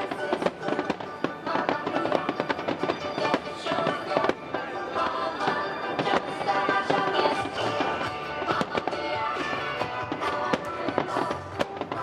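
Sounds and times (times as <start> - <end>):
fireworks bangs and crackle: 0.0 - 12.0.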